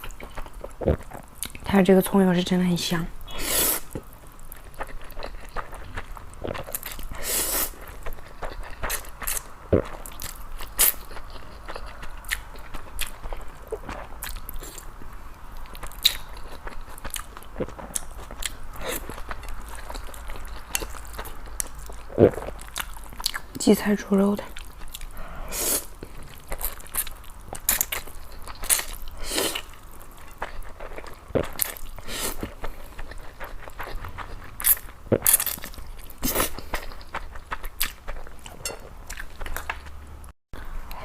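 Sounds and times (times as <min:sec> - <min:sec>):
person chewing food: 0:00.0 - 0:01.6, 0:03.3 - 0:23.6, 0:24.4 - 0:40.0.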